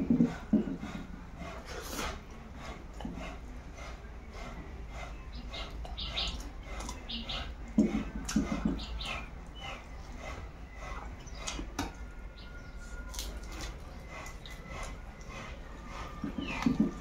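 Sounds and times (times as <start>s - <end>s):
wet mouth-smacking chewing: 5.6s - 10.4s, 11.0s - 12.0s, 12.8s - 17.0s.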